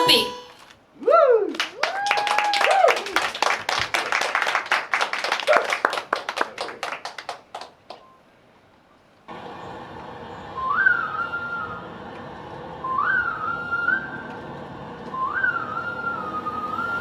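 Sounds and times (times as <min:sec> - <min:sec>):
whistle-like melody: 0:10.5 - 0:11.8, 0:12.8 - 0:14.3, 0:15.1 - 0:17.0.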